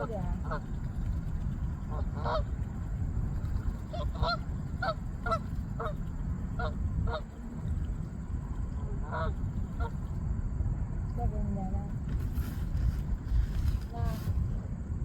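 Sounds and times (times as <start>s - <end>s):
steady low rumble: 0.0s - 15.0s
geese honking: 1.9s - 2.4s, 3.9s - 6.0s, 6.6s - 7.4s, 9.0s - 10.0s.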